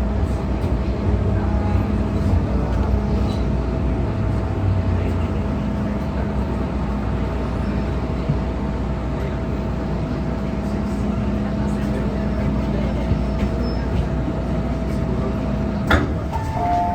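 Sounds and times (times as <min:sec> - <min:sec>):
train wheels rumbling on rail: 0:00.0 - 0:16.9
traction equipment humming: 0:15.5 - 0:16.9.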